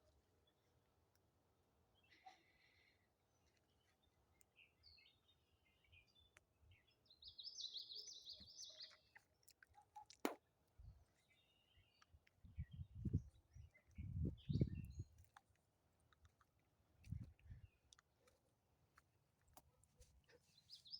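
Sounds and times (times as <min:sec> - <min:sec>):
songbird singing: 0:03.3 - 0:10.1, 0:11.1 - 0:18.3, 0:20.2 - 0:20.9.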